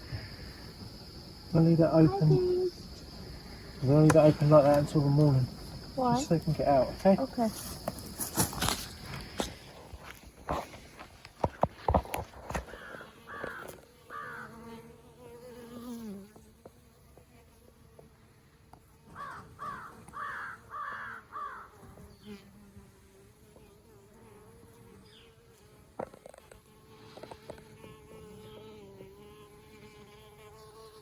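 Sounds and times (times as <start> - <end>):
honeybees buzzing: 0.0 - 31.0
bird calling: 12.7 - 14.6, 19.2 - 21.8.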